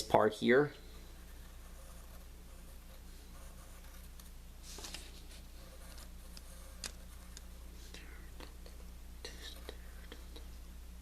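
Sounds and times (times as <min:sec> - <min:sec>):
steady low hum: 0:00.0 - 0:11.0
drawing tool scratching paper: 0:01.1 - 0:04.2, 0:04.8 - 0:07.7.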